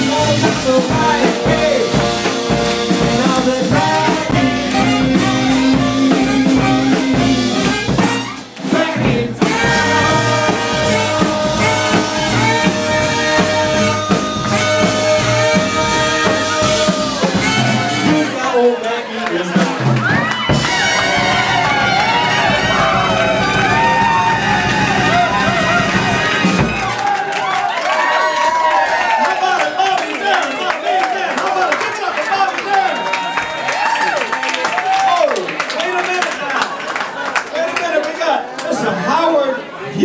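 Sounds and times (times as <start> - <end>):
live band playing: 0.0 - 18.8, 19.4 - 28.3.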